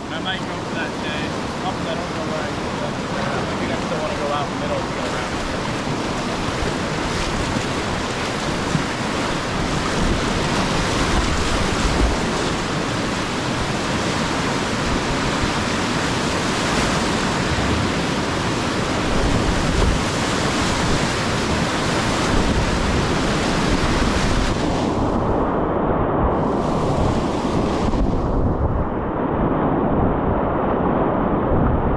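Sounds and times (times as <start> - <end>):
whitewater rushing: 0.0 - 25.1.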